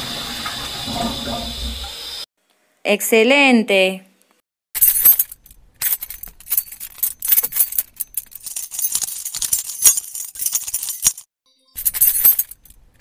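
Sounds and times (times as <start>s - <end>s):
keys jangling: 4.8s - 12.9s.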